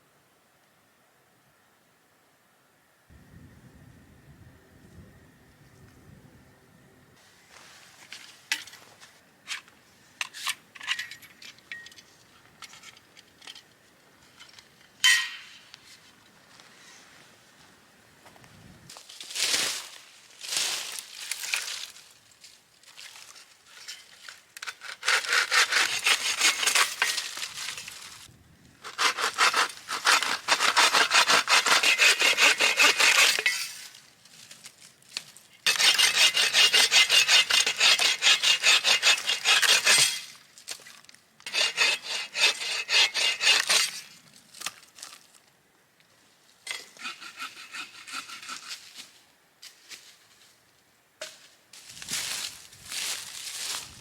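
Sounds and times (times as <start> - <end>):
hand saw cutting wood: 24.6 - 27.2, 28.8 - 33.7, 35.7 - 40.2, 41.5 - 44.1, 46.7 - 48.9.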